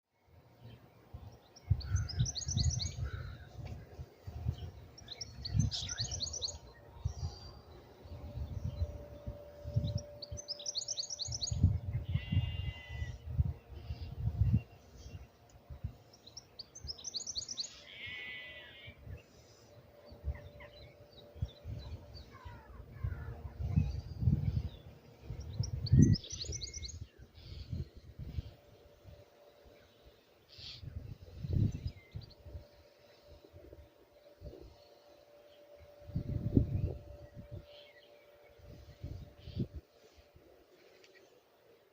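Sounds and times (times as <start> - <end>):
songbird singing: 0.1 - 41.9
small birds chirping: 0.3 - 41.9
wind on microphone: 1.1 - 16.0, 20.1 - 29.2, 30.6 - 34.8, 35.8 - 40.0.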